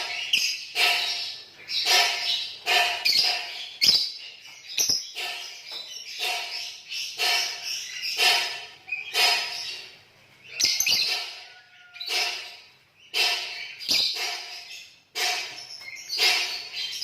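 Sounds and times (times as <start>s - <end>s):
lovebirds chattering shrilly: 0.0s - 17.0s.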